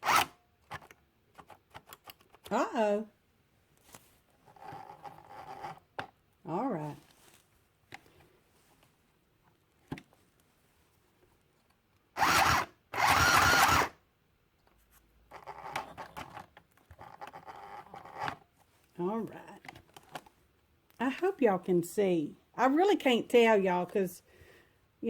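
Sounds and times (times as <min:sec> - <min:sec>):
sewing machine buzzing: 0:00.0 - 0:00.3, 0:12.2 - 0:14.0
rustling: 0:03.6 - 0:05.9, 0:06.8 - 0:11.7.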